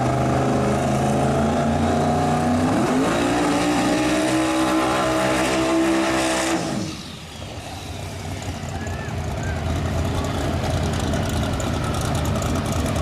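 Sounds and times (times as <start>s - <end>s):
racing car engine at high revs: 0.0s - 8.6s.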